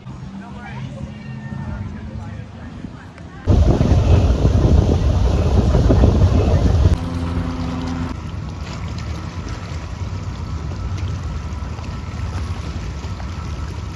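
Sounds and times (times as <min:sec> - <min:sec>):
boat engine rumble: 0:00.0 - 0:13.9
wind buffeting microphone: 0:03.4 - 0:08.6
steady pitched hum: 0:03.5 - 0:08.3.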